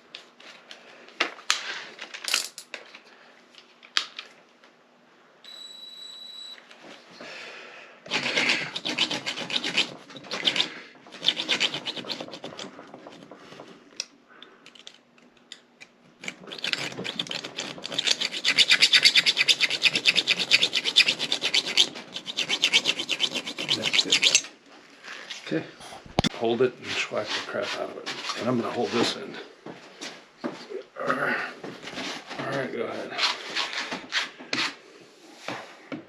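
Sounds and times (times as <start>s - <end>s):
hand rasping on metal: 8.1s - 13.3s, 16.2s - 24.4s.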